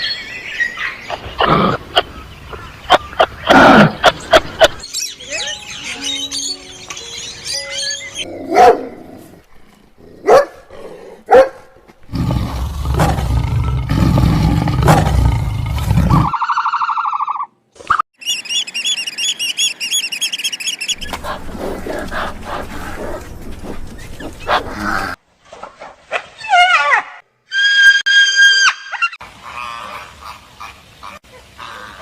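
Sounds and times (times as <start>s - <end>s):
animal chirps and tones: 4.8s - 8.3s, 18.2s - 21.2s
loud low roar: 12.1s - 16.3s.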